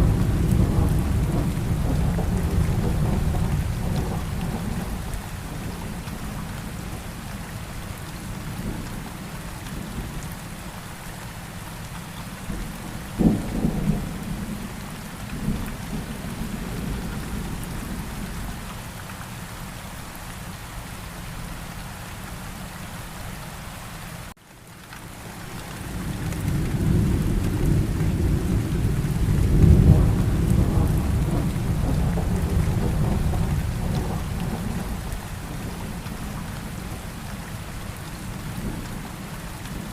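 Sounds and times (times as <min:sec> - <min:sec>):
thunder crack: 0:00.0 - 0:04.9, 0:26.4 - 0:35.0
rolling thunder rumble: 0:00.0 - 0:07.0, 0:12.4 - 0:18.7, 0:25.7 - 0:39.9
steady rain falling: 0:00.0 - 0:39.9.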